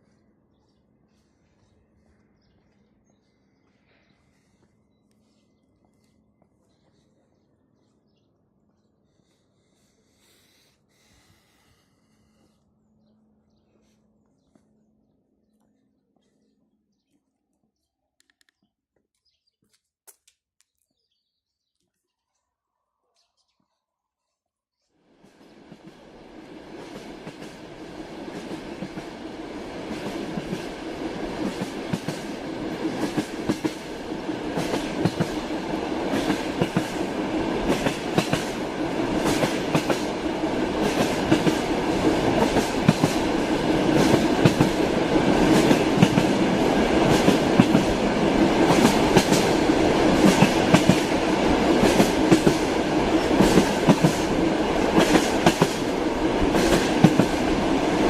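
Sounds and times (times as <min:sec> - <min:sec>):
sharp clicks: 0:18.2 - 0:18.7.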